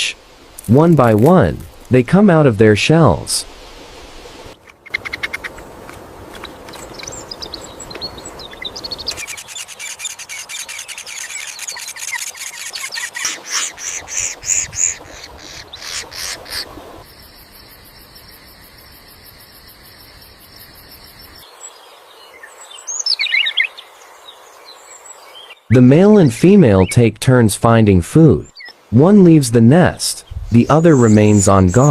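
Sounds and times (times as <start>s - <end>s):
bird calls: 4.6s - 5.6s, 6.3s - 17.0s, 20.6s - 27.0s, 30.2s - 31.9s
nestlings chirping high peeps: 6.7s - 16.6s.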